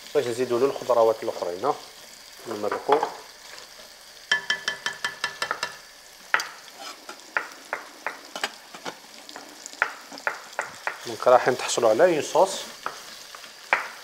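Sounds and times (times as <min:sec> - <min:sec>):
meat and onion sizzling in a pot: 0:00.0 - 0:14.0
knife tapping on a cutting board: 0:04.3 - 0:05.8
spoon knocking on a pot: 0:04.3 - 0:06.5, 0:09.8 - 0:11.0.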